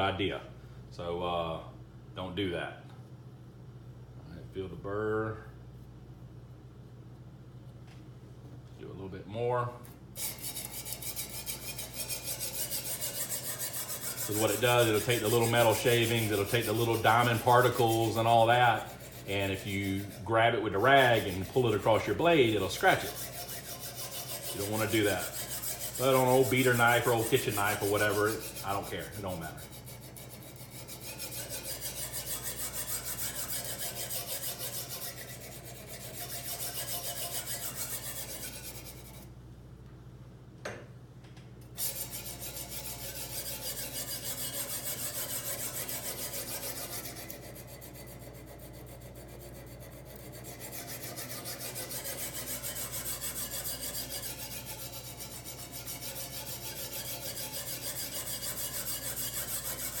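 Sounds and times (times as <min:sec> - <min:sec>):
sharpening stone rasping on knife: 0:10.2 - 0:39.3, 0:41.8 - 1:00.0.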